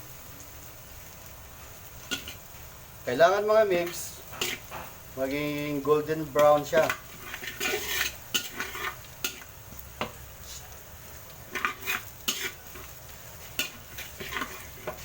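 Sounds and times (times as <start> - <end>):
garlic sizzling in oil: 0.0 - 15.0
utensil scraping a pan: 2.1 - 2.4, 3.7 - 5.0, 6.3 - 9.5, 11.4 - 15.0.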